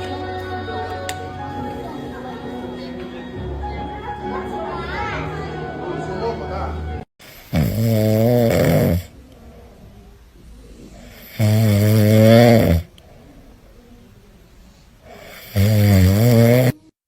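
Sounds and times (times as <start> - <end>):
rattling snores: 7.2 - 14.2, 15.0 - 16.9
quiet breathing: 7.2 - 16.9.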